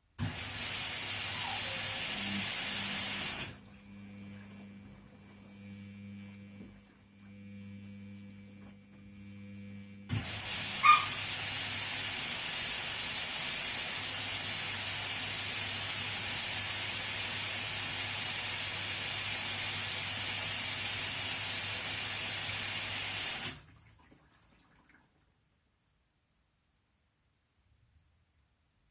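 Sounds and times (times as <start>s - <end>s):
water rushing in with hiss: 0.2s - 3.6s, 10.2s - 23.6s
washing machine low hum: 0.2s - 25.3s.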